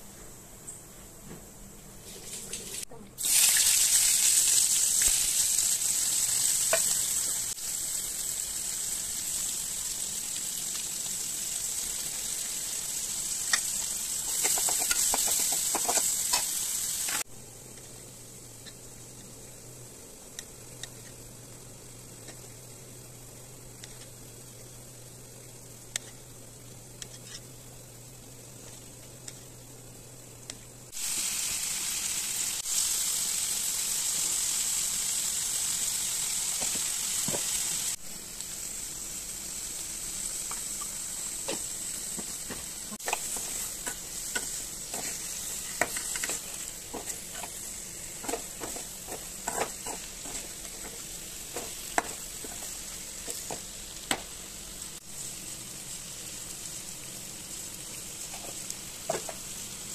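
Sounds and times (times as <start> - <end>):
vegetables sizzling in oil: 2.0 - 59.9
steel spoon scraping pan: 43.0 - 52.7.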